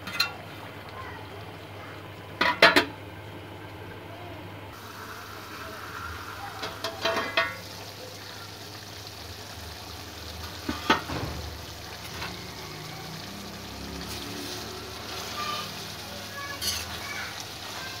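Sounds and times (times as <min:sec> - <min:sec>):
metal lid clattering: 0:00.0 - 0:00.4, 0:02.4 - 0:03.0, 0:06.6 - 0:07.6
liver sizzling in a pan: 0:04.7 - 0:18.0.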